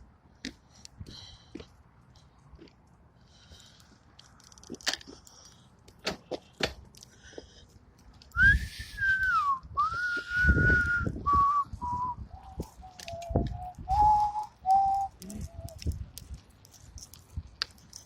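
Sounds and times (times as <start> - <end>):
person whistling a slow tune: 8.4 - 15.8.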